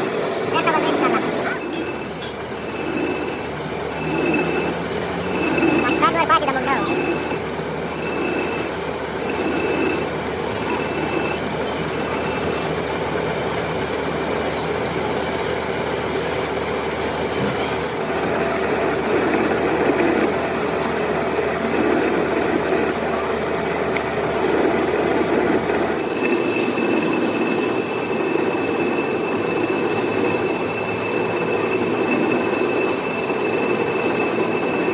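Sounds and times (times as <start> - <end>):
metal lathe running: 0.0 - 34.9
faint high whine: 0.1 - 12.9, 25.9 - 34.9.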